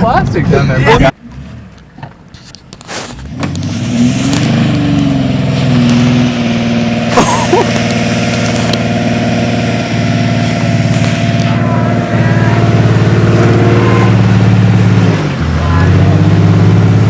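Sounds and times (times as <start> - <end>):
van engine revving hard: 3.2 - 17.0
wavering squeal: 10.2 - 14.9.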